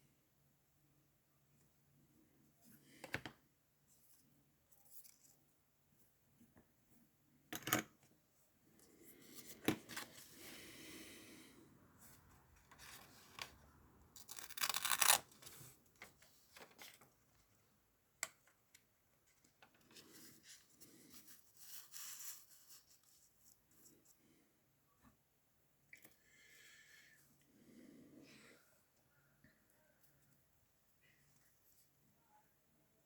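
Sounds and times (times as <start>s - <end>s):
paper rustling and scraping: 12.6s - 13.6s, 14.2s - 17.0s
tape tearing: 14.2s - 15.6s.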